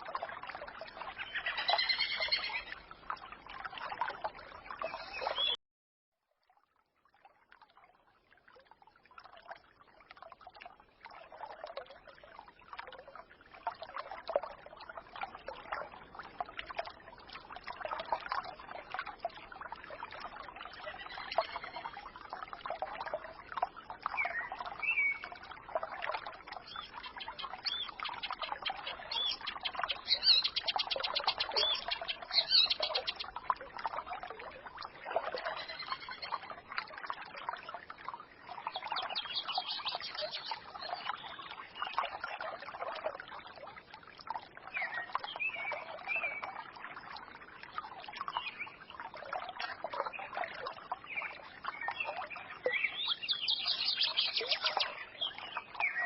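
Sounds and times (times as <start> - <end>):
stream babbling: 0.0 - 5.6, 7.6 - 56.0
songbirds chirping: 4.2 - 5.6, 26.5 - 33.4, 35.3 - 36.5, 38.6 - 42.5, 50.1 - 56.0.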